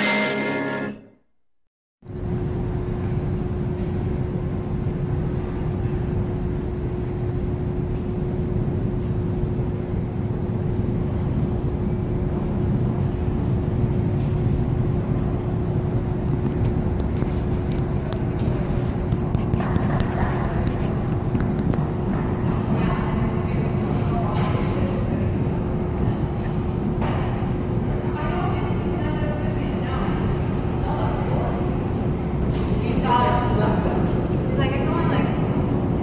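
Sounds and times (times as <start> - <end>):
constant hum: 2.1 - 36.0.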